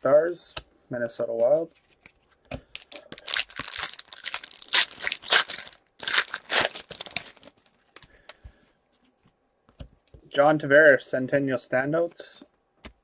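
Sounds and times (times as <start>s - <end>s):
card pack wrapper tearing and crinkling: 2.8s - 7.7s.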